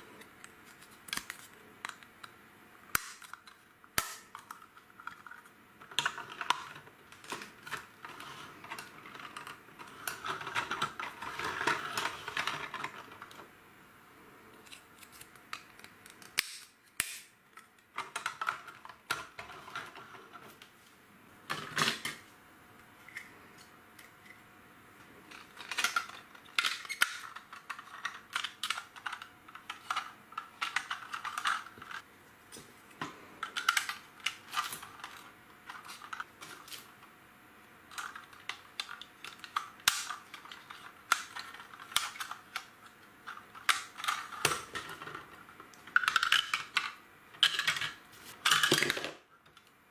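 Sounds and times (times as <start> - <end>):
plastic bricks clicking and rattling: 3.0 - 13.4, 25.3 - 32.0, 37.9 - 49.6.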